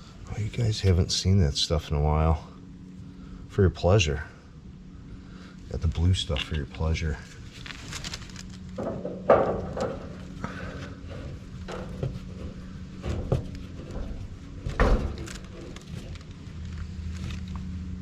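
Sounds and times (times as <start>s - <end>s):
steady low hum: 0.0s - 18.0s
knocks and clunks of fittings: 8.8s - 10.2s, 11.1s - 15.4s.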